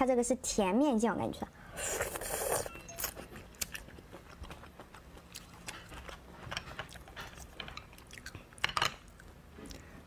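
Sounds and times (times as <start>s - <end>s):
chewing with wet mouth clicks: 2.2s - 6.1s, 7.9s - 9.9s.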